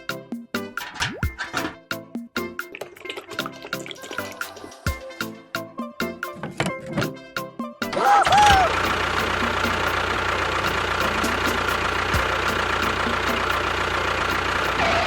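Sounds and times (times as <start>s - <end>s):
small motor running: 8.3s - 15.0s.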